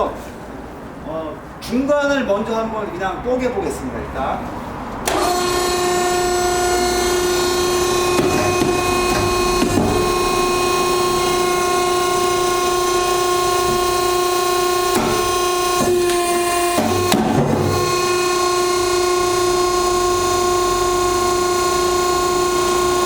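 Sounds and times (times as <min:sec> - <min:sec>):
hydraulic pump whine: 0:05.0 - 0:23.0.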